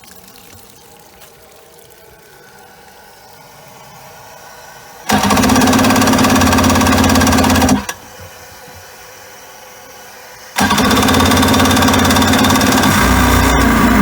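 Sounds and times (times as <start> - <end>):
water running through hose: 0.0 - 5.4
fast pulsing engine noise: 3.4 - 8.0, 10.5 - 14.0
engine starter cranking: 5.1 - 8.5, 10.6 - 14.0.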